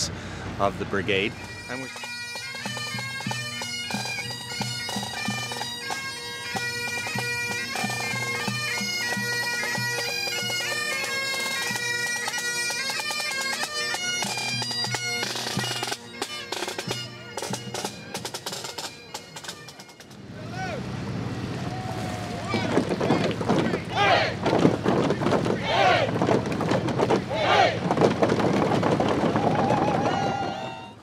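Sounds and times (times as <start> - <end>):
bagpipes playing: 0.0 - 21.7, 30.2 - 31.0.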